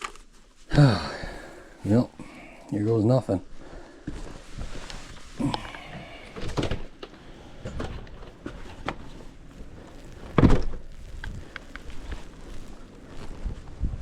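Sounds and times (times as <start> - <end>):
door being opened: 6.2 - 8.1.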